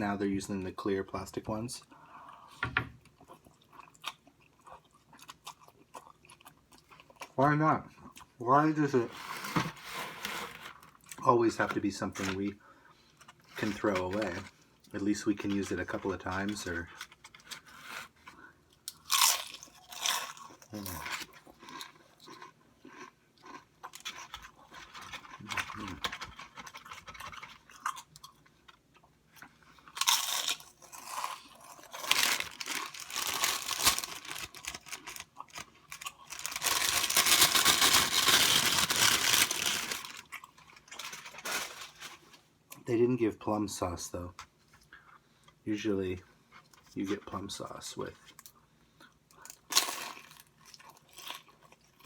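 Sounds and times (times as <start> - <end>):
plastic containers crinkling: 13.6 - 14.5, 30.0 - 42.4
bag rustling: 31.9 - 35.6, 36.3 - 40.2.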